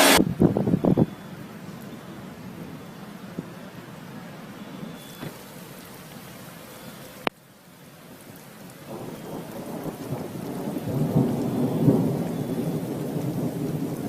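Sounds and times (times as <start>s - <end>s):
thunder rolling: 0.0s - 3.6s, 8.9s - 14.0s
faint rain hiss: 0.0s - 14.0s.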